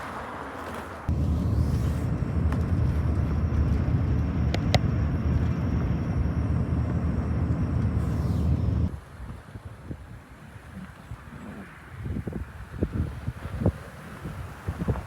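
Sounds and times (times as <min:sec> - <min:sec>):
steady low rumble: 0:01.1 - 0:09.0.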